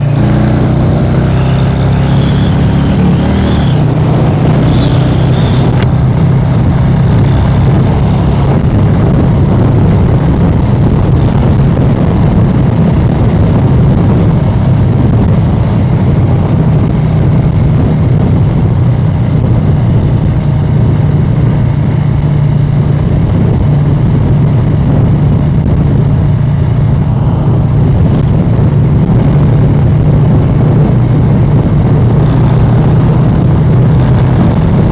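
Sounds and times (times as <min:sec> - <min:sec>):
motorcycle engine cruising: 0:00.0 - 0:34.9.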